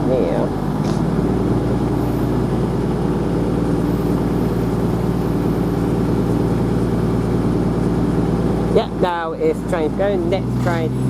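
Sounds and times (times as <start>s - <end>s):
train diesel engines idling: 0.0s - 11.0s.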